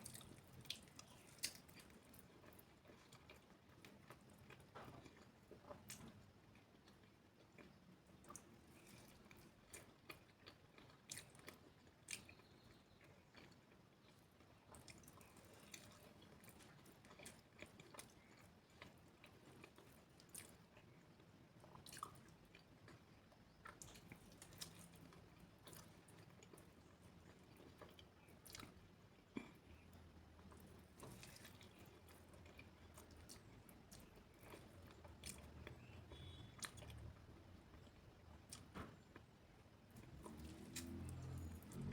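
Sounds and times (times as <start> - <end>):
chewing and biting crunches: 0.0 - 20.8, 40.0 - 41.9.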